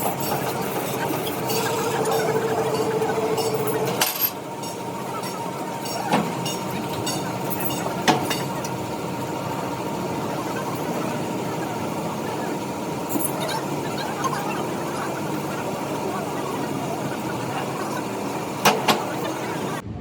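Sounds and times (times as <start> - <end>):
workshop machinery humming: 0.0 - 20.0.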